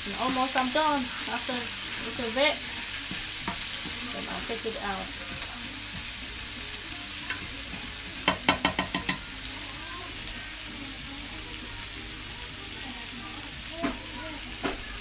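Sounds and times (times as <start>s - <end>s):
food sizzling in a frying pan: 0.0s - 15.0s
spatula knocking against pan: 8.2s - 9.3s.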